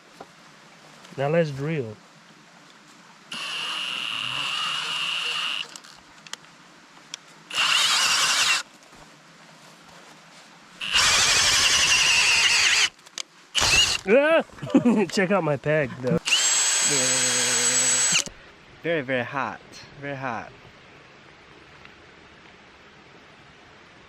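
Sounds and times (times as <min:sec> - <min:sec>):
power drill boring into wood: 0:03.3 - 0:05.9, 0:07.5 - 0:08.6, 0:10.8 - 0:13.0, 0:13.6 - 0:14.1, 0:16.2 - 0:18.4.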